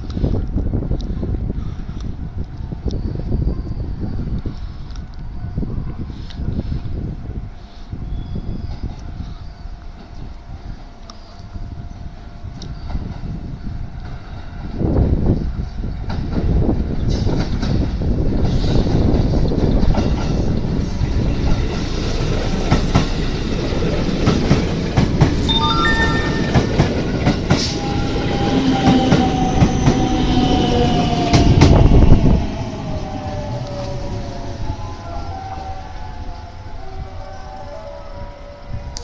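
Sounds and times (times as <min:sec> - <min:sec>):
train wheels clacking on rails: 0:16.0 - 0:32.0
train braking whine: 0:25.4 - 0:39.0.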